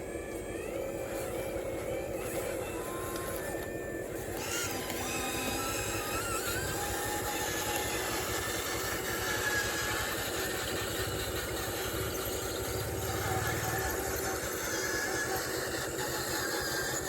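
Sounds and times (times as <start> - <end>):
construction machinery rumble: 0.0 - 17.0
faint high whines: 0.0 - 17.0.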